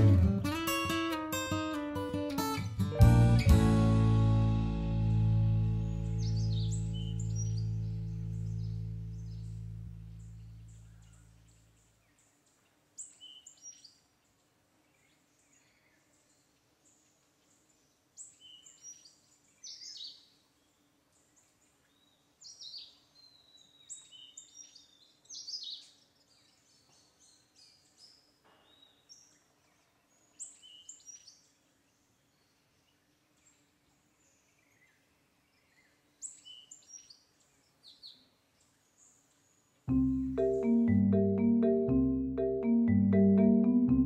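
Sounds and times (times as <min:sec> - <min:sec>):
small birds chirping: 0:05.6 - 0:41.8.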